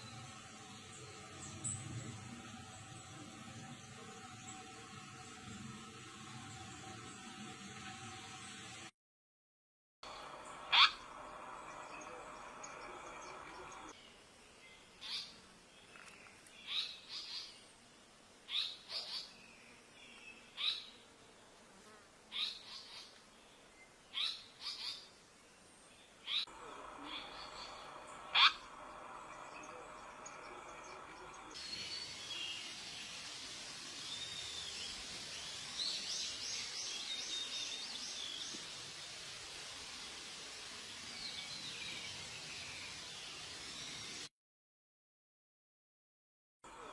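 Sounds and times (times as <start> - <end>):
steady outdoor hiss: 0.0 - 8.9, 10.0 - 44.3, 46.6 - 46.9
sharp downward bird calls: 10.6 - 11.1, 27.0 - 28.7.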